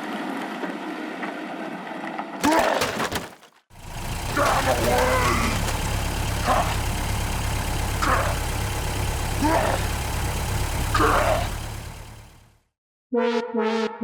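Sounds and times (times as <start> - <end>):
tractor engine hum: 2.5 - 12.6.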